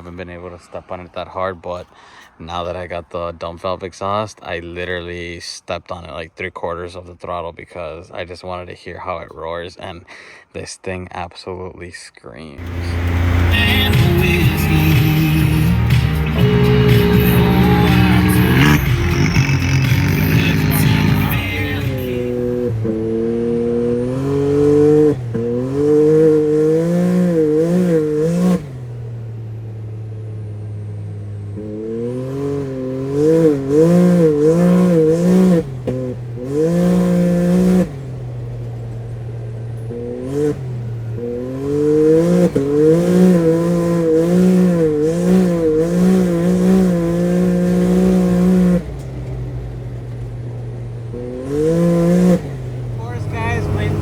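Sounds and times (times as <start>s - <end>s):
turbocharged engine revving: 12.6s - 54.0s.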